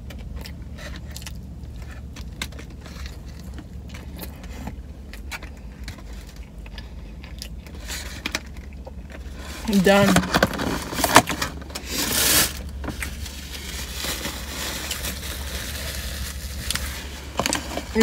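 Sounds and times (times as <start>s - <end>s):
low car cabin hum: 0.0s - 18.0s
paper wrapper rustling: 9.6s - 18.0s.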